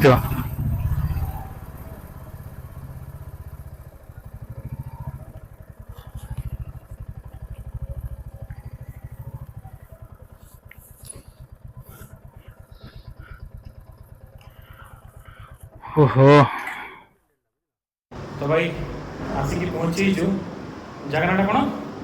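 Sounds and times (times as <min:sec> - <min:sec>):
motorcycle engine running: 0:00.0 - 0:16.3, 0:18.1 - 0:22.0.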